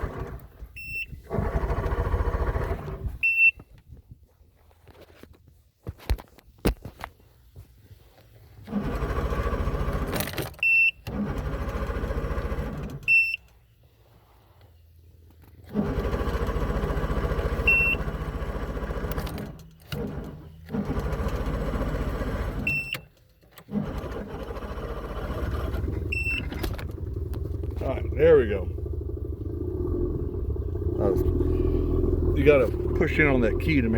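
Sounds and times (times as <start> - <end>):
outboard engine starter cranking: 0.0 - 4.0, 8.0 - 33.9.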